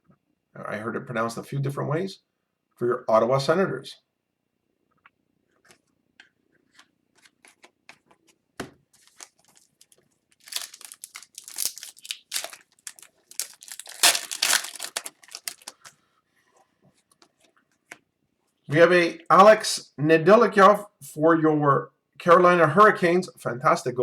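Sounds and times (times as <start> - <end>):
foil wrapper tearing and crinkling: 9.0 - 15.9.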